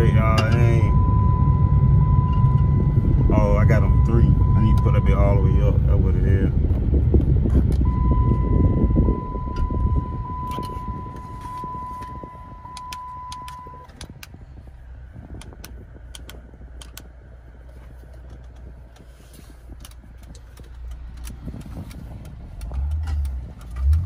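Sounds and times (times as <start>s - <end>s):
car engine low rumble: 0.0s - 24.0s
steady high beep: 0.1s - 5.5s, 7.9s - 13.9s.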